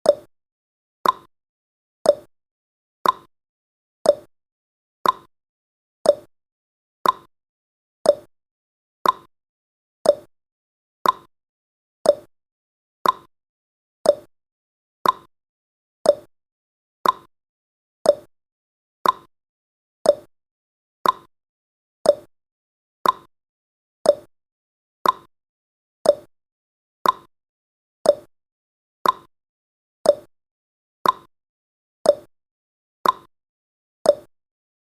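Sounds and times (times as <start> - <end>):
timer ticking: 0.0 - 0.3, 1.0 - 1.3, 2.0 - 2.3, 3.0 - 3.3, 4.0 - 4.3, 5.0 - 5.3, 6.0 - 6.3, 7.0 - 7.3, 8.0 - 8.3, 9.0 - 9.3, 10.0 - 10.3, 11.0 - 11.3, 12.0 - 12.3, 13.0 - 13.3, 14.0 - 14.3, 15.0 - 15.3, 16.0 - 16.3, 17.0 - 17.3, 18.0 - 18.3, 19.0 - 19.3, 20.0 - 20.3, 21.0 - 21.3, 22.0 - 22.3, 23.0 - 23.3, 24.0 - 24.3, 25.0 - 25.3, 26.0 - 26.3, 27.0 - 27.3, 28.0 - 28.3, 29.0 - 29.3, 30.0 - 30.3, 31.0 - 31.3, 32.0 - 32.3, 33.0 - 33.3, 34.1 - 34.3.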